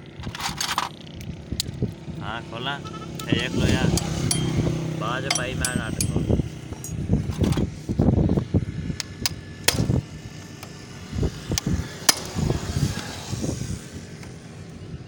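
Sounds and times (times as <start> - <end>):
sharp metallic clicks: 3.9 - 7.5.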